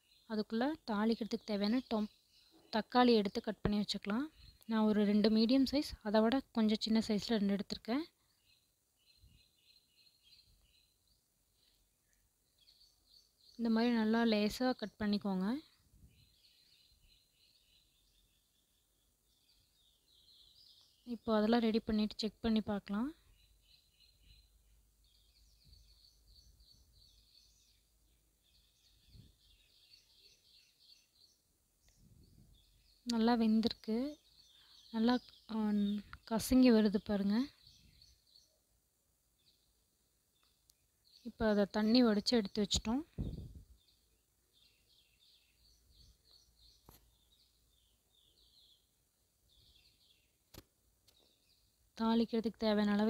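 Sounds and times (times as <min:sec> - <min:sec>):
faint bird chirping: 0:00.0 - 0:53.0
soft low thump: 0:43.1 - 0:43.6.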